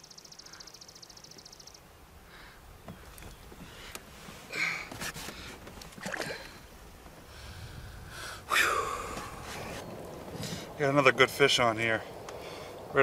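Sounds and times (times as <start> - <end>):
man gasping and grunting: 8.2 - 9.3.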